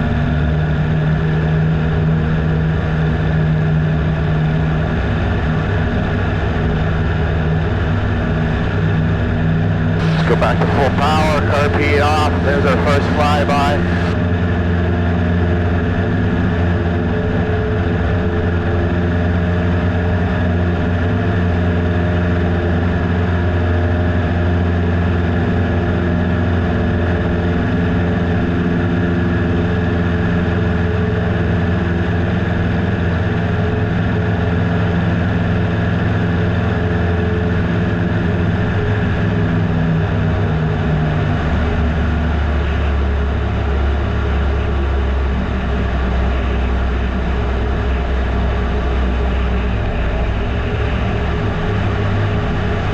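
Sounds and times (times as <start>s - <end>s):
airplane engine and propeller: 10.0s - 14.2s.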